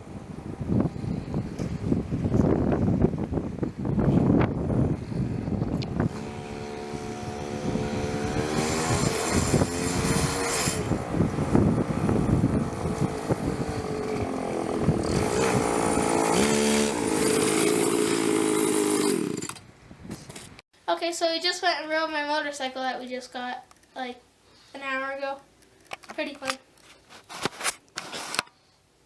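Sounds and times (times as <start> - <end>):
motorcycle engine revving: 4.0 - 19.6.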